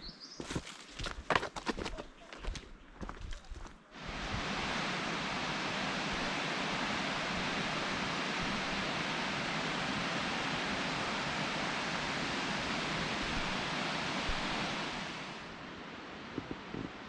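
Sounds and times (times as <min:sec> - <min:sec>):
creek water flowing: 0:03.9 - 0:17.0.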